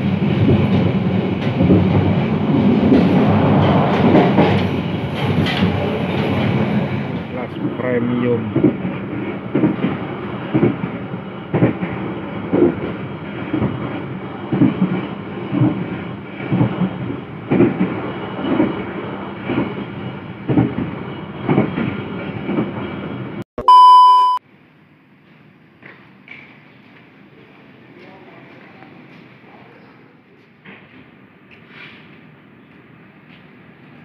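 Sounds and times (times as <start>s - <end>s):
train wheels clacking over rail joints: 0.0s - 23.1s
train running rumble: 0.0s - 23.4s
loud electronic beep: 23.6s - 24.4s.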